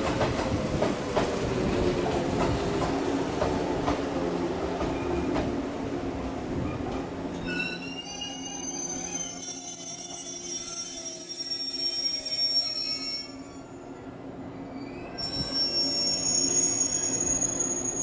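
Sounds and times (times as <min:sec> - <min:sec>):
train wheels and brakes squealing: 0:04.8 - 0:18.0.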